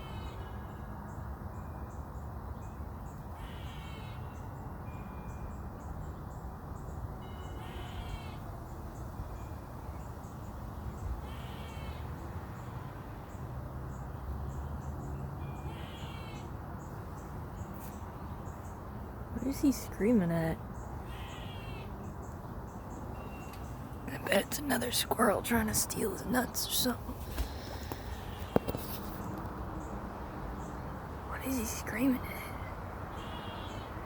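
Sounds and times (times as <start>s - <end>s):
squirrel calling: 19.3s - 29.3s, 31.2s - 34.0s.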